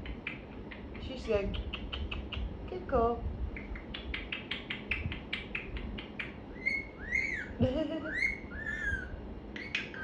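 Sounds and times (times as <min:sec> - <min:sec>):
parrot clicks: 0:00.0 - 0:02.5, 0:03.6 - 0:06.4
parrot whistling: 0:06.5 - 0:10.0.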